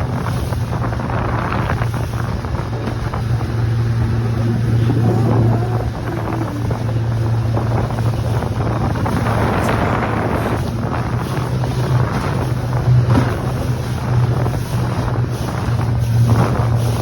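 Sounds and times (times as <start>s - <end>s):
outboard motor running: 0.0s - 17.0s
wind rushing on microphone: 0.0s - 17.0s.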